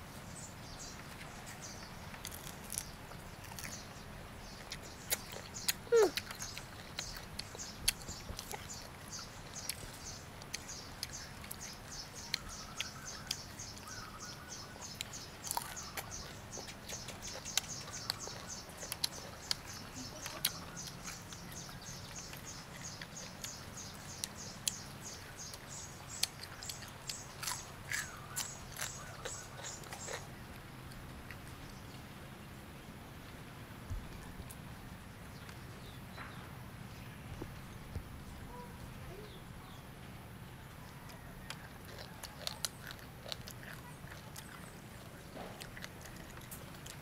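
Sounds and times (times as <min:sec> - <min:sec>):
crunchy biting and chewing: 0:00.9 - 0:31.8, 0:40.8 - 0:47.0.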